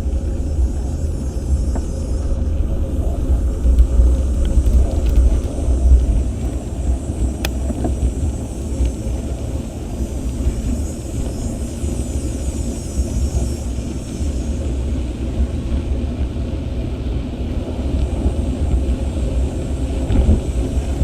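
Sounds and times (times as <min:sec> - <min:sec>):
wind buffeting microphone: 0:00.0 - 0:11.9
road and tyre noise: 0:00.0 - 0:21.0.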